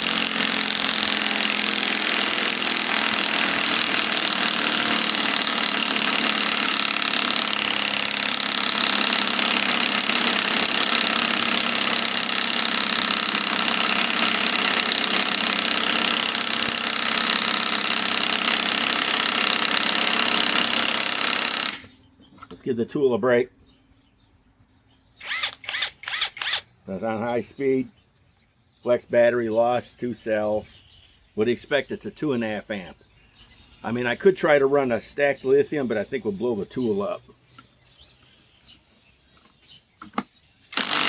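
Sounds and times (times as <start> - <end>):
impact wrench hammering: 0.0 - 21.9, 40.7 - 41.0.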